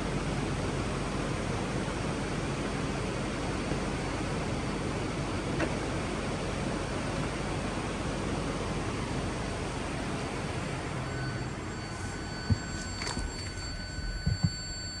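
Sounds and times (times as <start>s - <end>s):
dull thumps: 12.4s - 14.8s.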